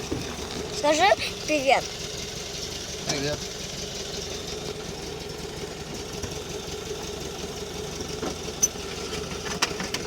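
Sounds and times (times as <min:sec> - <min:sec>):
engine running steadily: 0:00.0 - 0:10.0.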